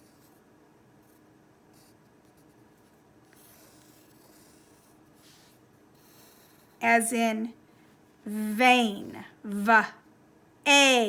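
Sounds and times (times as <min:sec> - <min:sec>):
pen writing on paper: 0:01.0 - 0:06.8.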